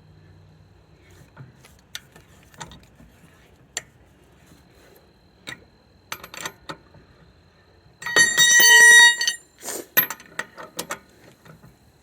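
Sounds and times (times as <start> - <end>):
ringing metal clatter: 8.0 - 9.4
tire iron clinking on lug nuts: 8.0 - 11.1.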